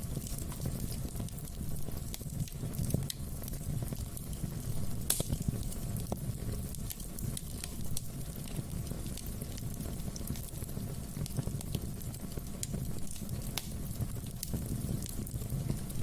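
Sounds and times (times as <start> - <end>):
fire crackles and pops: 0.0 - 16.0
wood fire burning: 0.0 - 16.0.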